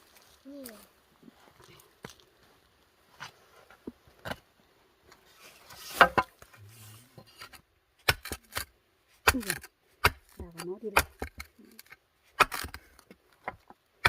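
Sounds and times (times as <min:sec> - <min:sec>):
scraping through soil: 0:05.2 - 0:07.6
digging tool striking ground: 0:07.3 - 0:13.0.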